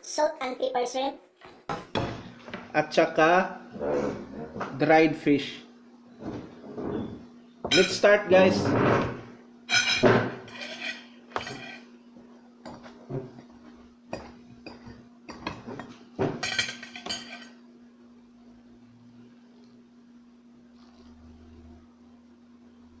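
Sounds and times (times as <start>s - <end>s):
steady low hum: 1.7s - 23.0s
cutlery clinking on plates: 7.7s - 8.0s, 9.7s - 11.9s, 14.2s - 17.6s.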